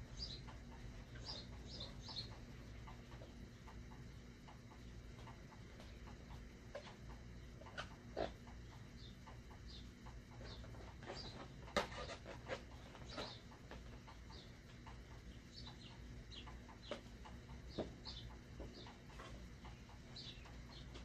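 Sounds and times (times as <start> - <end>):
low steady hum: 0.0 - 21.0
faint bird chirps: 0.1 - 2.4, 8.8 - 12.2.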